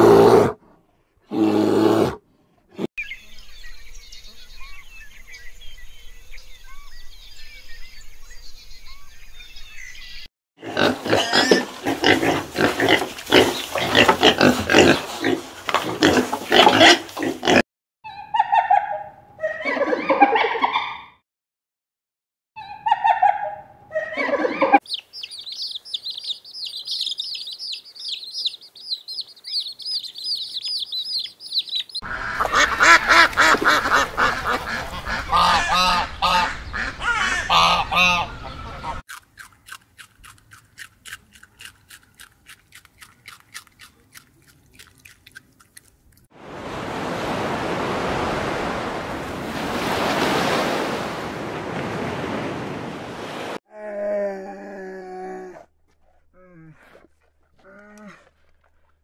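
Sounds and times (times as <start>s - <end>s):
ducks quacking: 32.0s - 39.0s
surf washing over sand: 46.4s - 53.6s.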